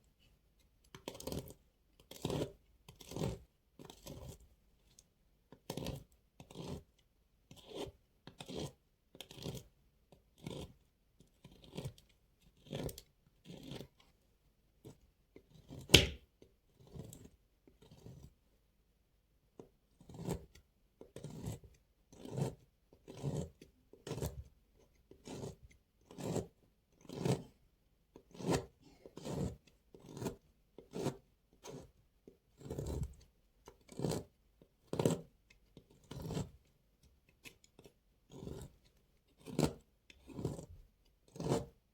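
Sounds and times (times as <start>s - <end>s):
knife cutting dry soap: 0.0s - 41.9s
sharp knock: 15.9s - 16.2s.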